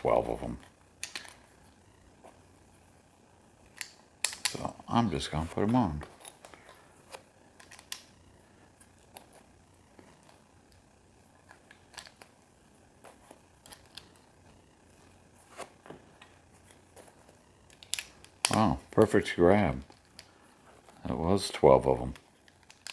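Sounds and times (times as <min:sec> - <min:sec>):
plastic toy bricks clicking: 0:17.7 - 0:18.6, 0:22.5 - 0:22.9.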